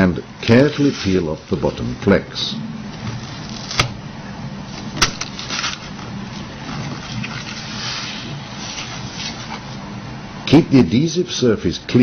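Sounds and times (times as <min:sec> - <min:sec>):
steady low hum: 0:00.0 - 0:12.0
foil peeling off metal: 0:03.0 - 0:04.0, 0:04.7 - 0:09.8.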